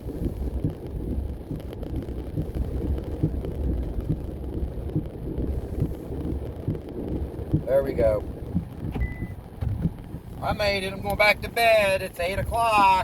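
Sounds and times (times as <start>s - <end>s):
car cabin road rumble: 0.0s - 13.0s
small irregular knocks: 8.5s - 10.3s.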